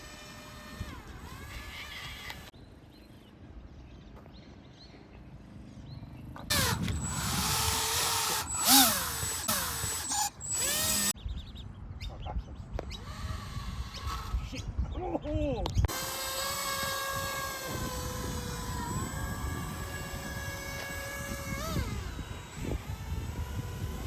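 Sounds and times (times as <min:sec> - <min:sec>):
electric boat motor whining: 0:06.5 - 0:11.2, 0:13.0 - 0:14.5, 0:15.9 - 0:24.0.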